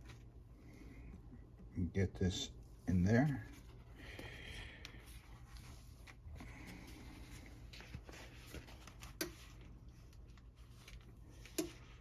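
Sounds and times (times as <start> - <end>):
paper rustling: 4.9 - 12.0.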